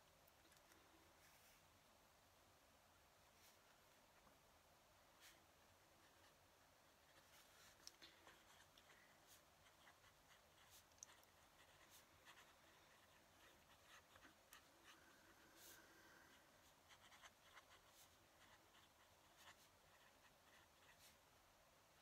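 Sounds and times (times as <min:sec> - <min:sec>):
pen nib scratching on paper: 0:07.0 - 0:21.2.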